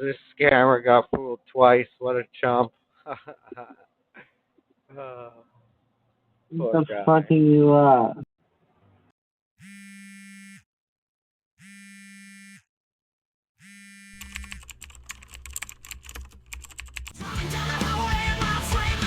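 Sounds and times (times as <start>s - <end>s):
rapid keyboard typing: 14.2s - 17.2s
loud rock music: 17.2s - 19.0s.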